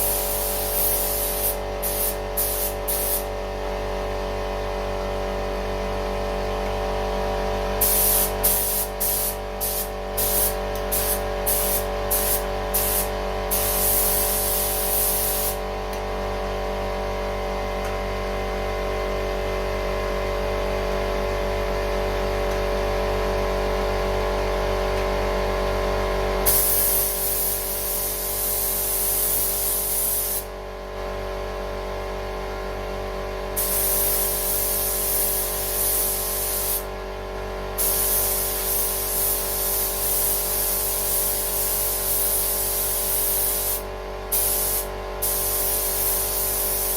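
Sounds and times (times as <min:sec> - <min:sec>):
spray gun hissing: 0:00.0 - 0:03.3, 0:07.8 - 0:15.6, 0:26.5 - 0:30.5, 0:33.6 - 0:36.9, 0:37.8 - 0:46.9.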